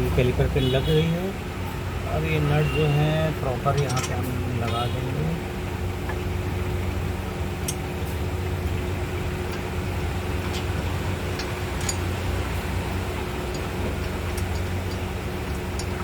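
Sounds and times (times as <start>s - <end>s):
low mechanical hum: 0.0s - 16.0s
sharp metallic ticks: 3.5s - 4.9s.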